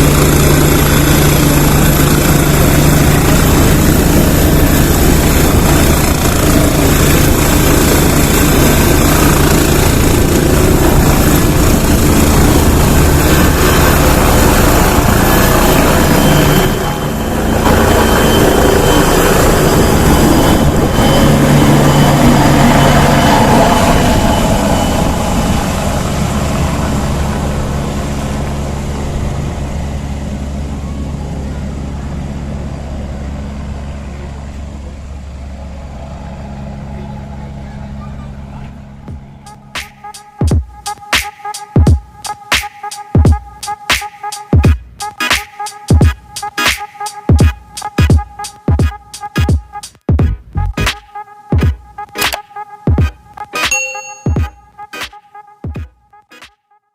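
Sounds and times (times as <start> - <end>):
helicopter rotor and engine: 0.0 - 40.9.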